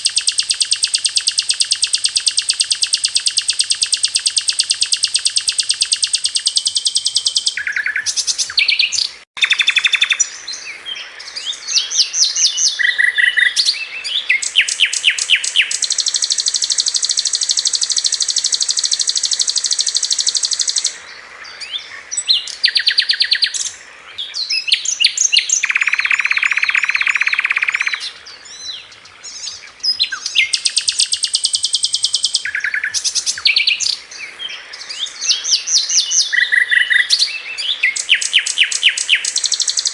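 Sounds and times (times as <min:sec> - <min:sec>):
flycatcher rattling trills: 0:00.0 - 0:10.2, 0:14.4 - 0:21.0, 0:30.4 - 0:33.8, 0:37.9 - 0:39.9.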